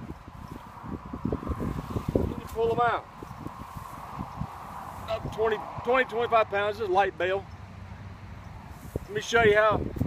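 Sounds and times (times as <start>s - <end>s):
hay bale rustling: 0.2s - 5.6s.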